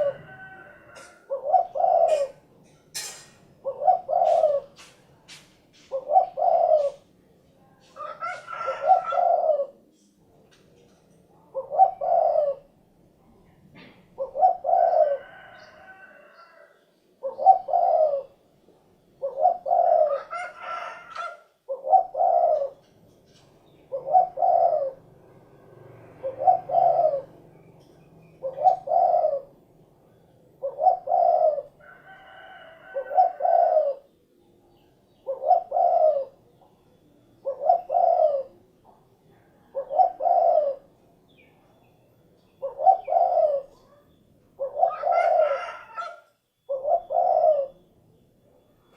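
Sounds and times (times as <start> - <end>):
dove cooing: 0.0 - 2.7, 3.5 - 5.0, 5.7 - 10.0, 11.4 - 41.4, 42.4 - 48.9
faint bird chirping: 5.9 - 48.9.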